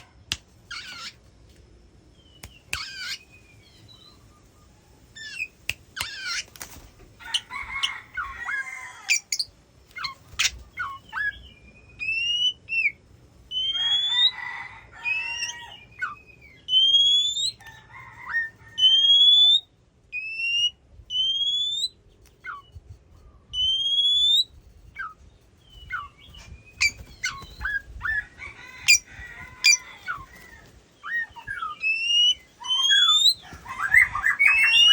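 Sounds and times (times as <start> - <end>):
bird singing whistles and chatter: 9.1 - 14.5, 15.1 - 17.6, 18.4 - 22.8, 23.5 - 34.9.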